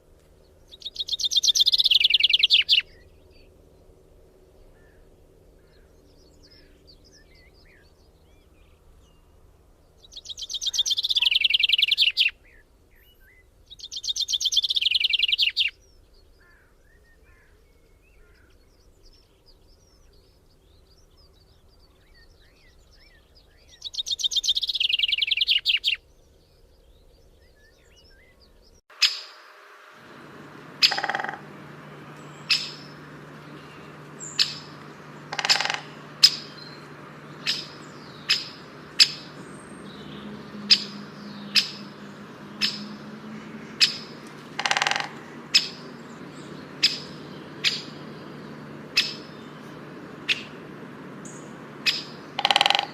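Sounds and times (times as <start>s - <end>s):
bird singing fast trill: 0.5s - 3.6s, 9.9s - 52.9s
faint bird chirps: 0.6s - 3.5s, 9.9s - 52.9s
short sharp bird calls: 28.9s - 52.9s.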